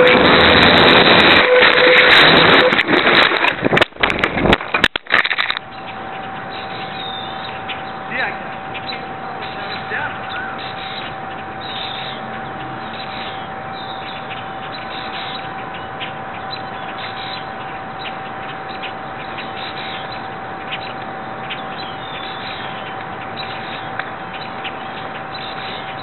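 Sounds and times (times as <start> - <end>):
constant high-pitched tone: 0.0 - 26.0
bird chirps: 5.7 - 26.0.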